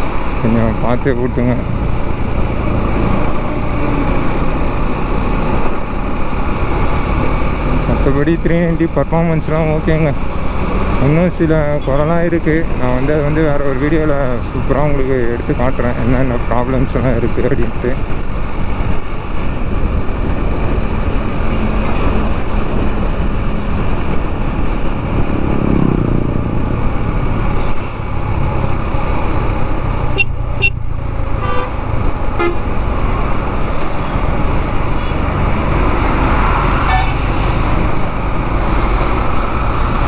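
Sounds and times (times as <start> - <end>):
motorcycle engine: 0.0 - 13.8, 18.0 - 40.0
wind rush: 18.0 - 40.0
vehicle horns honking: 30.1 - 31.8, 32.4 - 32.8, 36.8 - 37.3.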